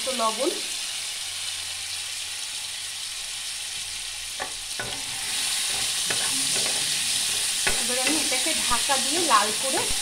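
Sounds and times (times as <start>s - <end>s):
potatoes sizzling in oil: 0.0s - 10.0s
spatula scraping a pan: 4.4s - 9.0s.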